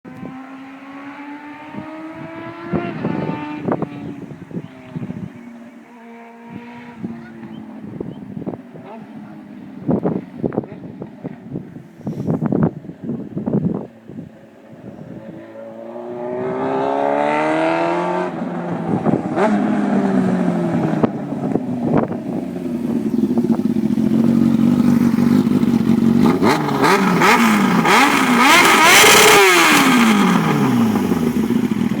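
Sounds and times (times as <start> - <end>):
motorcycle engine revving: 0.1 - 5.4, 15.2 - 32.0.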